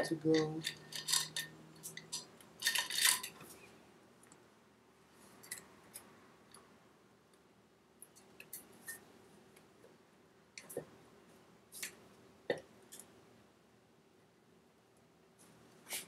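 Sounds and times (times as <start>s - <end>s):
metallic clicks of engine parts: 0.3s - 3.4s.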